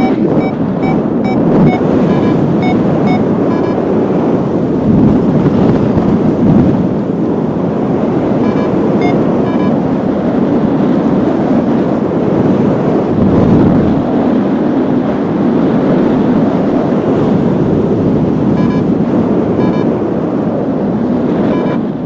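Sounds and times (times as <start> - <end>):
short high beeps: 0.0 - 3.8, 8.4 - 9.8, 18.5 - 18.9, 19.6 - 19.9, 21.5 - 21.8
wind buffeting microphone: 0.0 - 22.0.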